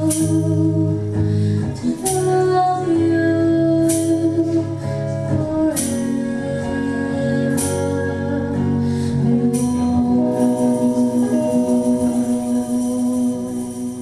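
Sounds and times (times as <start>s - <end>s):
slow acoustic guitar music: 0.0s - 14.0s.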